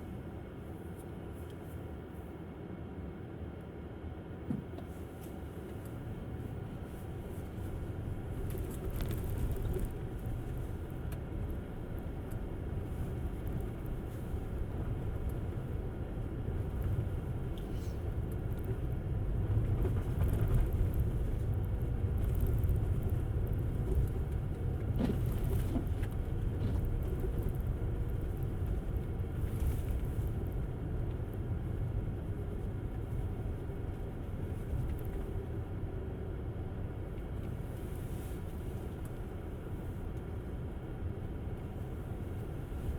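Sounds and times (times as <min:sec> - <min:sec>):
tyre and road rumble: 0:07.6 - 0:35.6.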